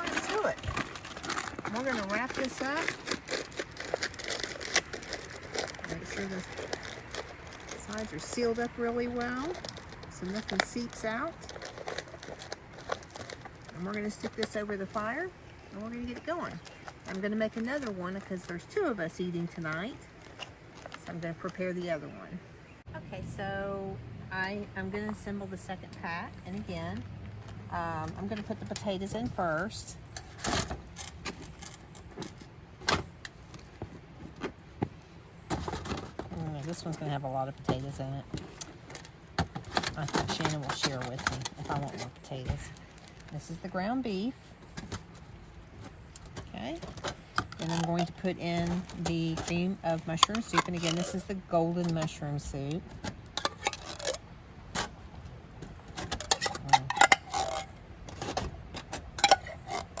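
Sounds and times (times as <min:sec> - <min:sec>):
aluminium foil crinkling: 0:00.0 - 0:21.8, 0:29.6 - 0:32.6, 0:35.5 - 0:54.4.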